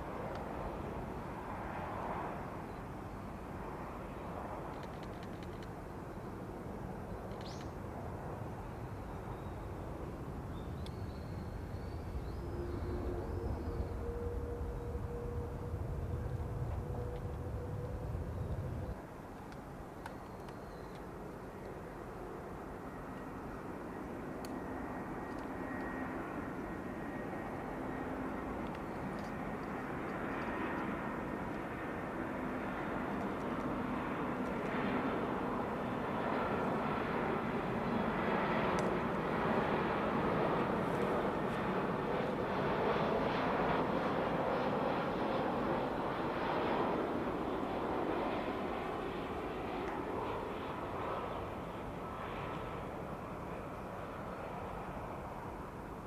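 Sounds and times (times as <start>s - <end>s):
distant jet airliner rumble: 0.0s - 56.0s
thin whining tones: 10.9s - 19.0s.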